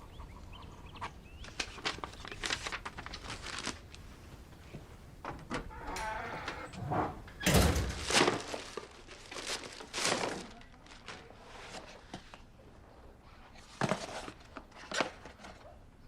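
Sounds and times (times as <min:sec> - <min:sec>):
packaging rustling and crinkling: 0:01.4 - 0:04.8, 0:07.8 - 0:12.5.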